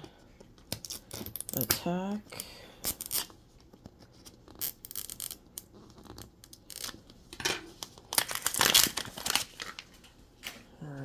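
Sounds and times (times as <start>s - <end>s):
plastic bags crinkling and tearing: 7.8s - 10.1s.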